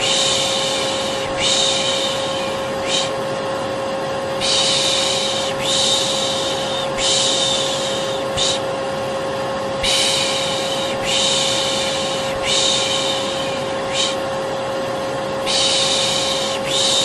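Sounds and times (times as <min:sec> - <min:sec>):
person shushing: 0:00.0 - 0:03.2, 0:04.4 - 0:08.7, 0:09.8 - 0:14.2, 0:15.5 - 0:17.0
vacuum cleaner drone: 0:00.0 - 0:17.0.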